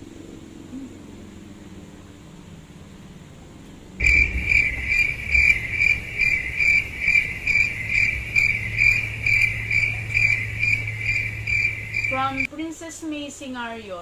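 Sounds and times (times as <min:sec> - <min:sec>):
low steady hum: 0:00.0 - 0:12.8
cricket chirping: 0:04.0 - 0:12.5.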